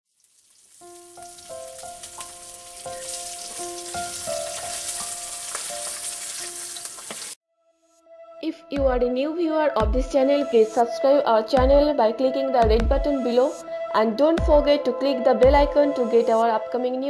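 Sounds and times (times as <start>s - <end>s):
food sizzling in hot oil: 0.1s - 7.4s
soft background music: 0.8s - 6.9s, 7.6s - 17.0s.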